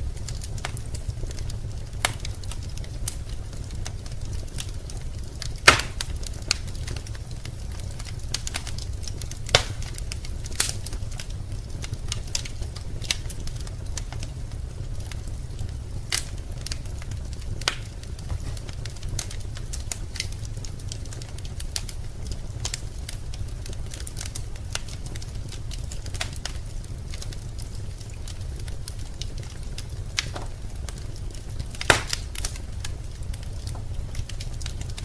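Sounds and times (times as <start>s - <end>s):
fire low rumble: 0.0s - 35.0s
wood fire crackling and popping: 0.0s - 35.0s.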